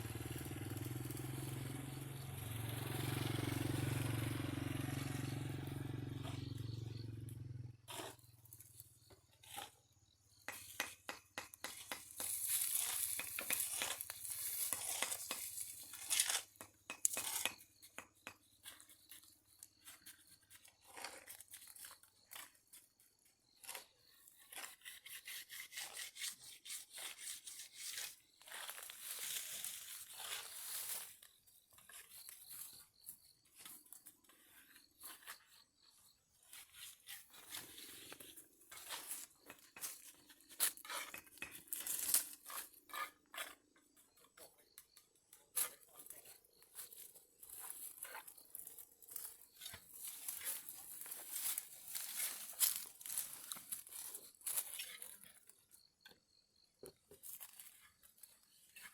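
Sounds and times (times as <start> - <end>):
rasping scraping strokes: 7.9 - 8.6, 11.6 - 19.1, 23.6 - 31.2.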